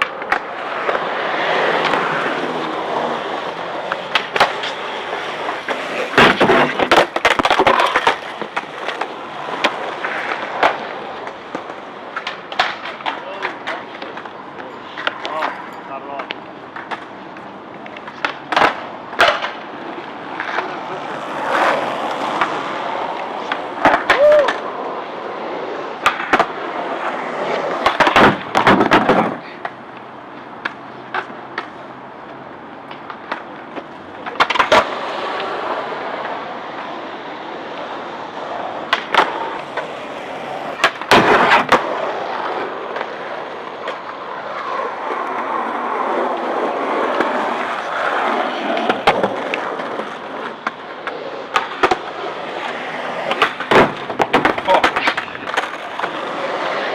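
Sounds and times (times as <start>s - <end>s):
skateboards rolling: 0.0s - 56.9s
skateboard clacks on grind box: 3.9s - 17.2s, 17.8s - 19.7s, 26.0s - 26.6s, 27.4s - 35.6s, 38.8s - 42.0s, 46.1s - 56.9s.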